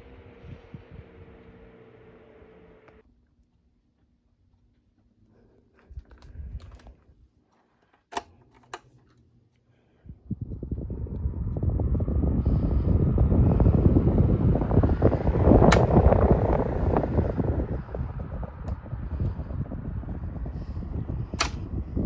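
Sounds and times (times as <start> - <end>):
electric fan blowing air: 0.0 - 3.0, 9.8 - 22.0
sharp clicks: 21.3 - 21.7.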